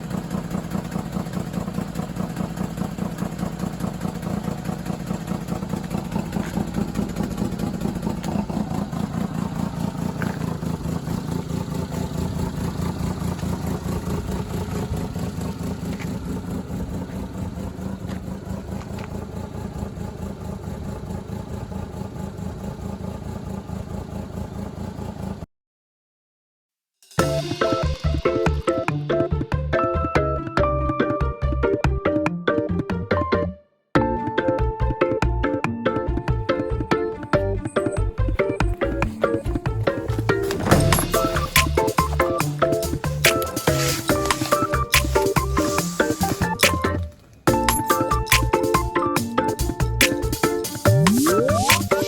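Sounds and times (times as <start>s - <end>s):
truck engine idling: 0.0s - 25.4s, 36.0s - 52.0s.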